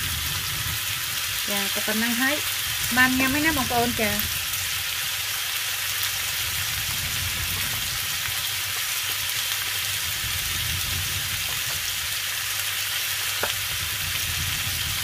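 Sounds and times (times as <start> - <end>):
lobster sizzling in oil: 0.0 - 15.0
faint crackles: 6.0 - 15.0.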